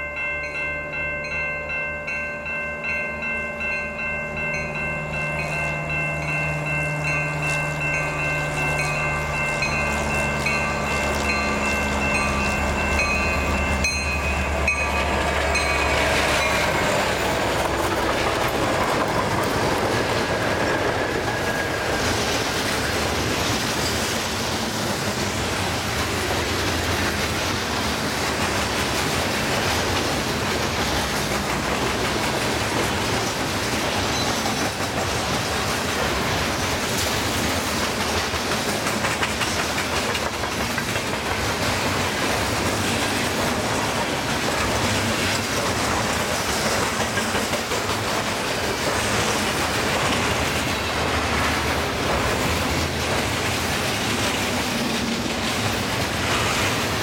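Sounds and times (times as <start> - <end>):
level-crossing bell ringing: 0.0 - 17.3
diesel locomotive engines droning: 0.0 - 57.0
train rumbling past: 0.0 - 57.0
wheels clicking over rail joints: 0.5 - 57.0.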